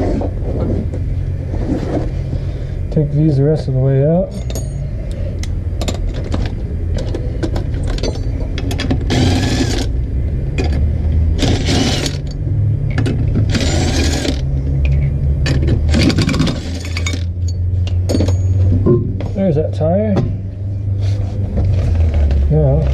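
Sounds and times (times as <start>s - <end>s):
steady low hum: 0.0s - 22.9s
ratchet wrench ratcheting: 8.6s - 9.9s, 11.4s - 12.4s, 13.5s - 14.5s.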